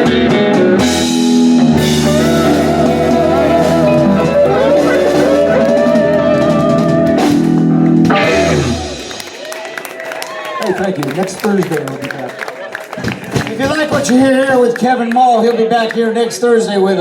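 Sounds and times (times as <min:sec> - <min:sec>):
guitar lead line bending: 0:00.0 - 0:09.4
drum hits: 0:00.0 - 0:09.5
blues-rock band playing: 0:00.0 - 0:10.6.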